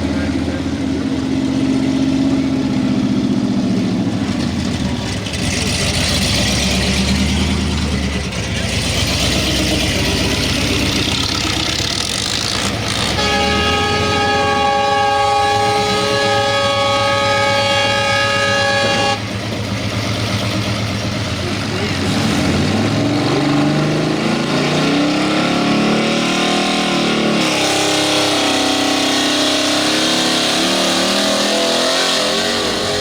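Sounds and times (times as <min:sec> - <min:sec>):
truck engine running hard: 0:00.0 - 0:33.0
multi-tone horn chord: 0:12.9 - 0:19.4.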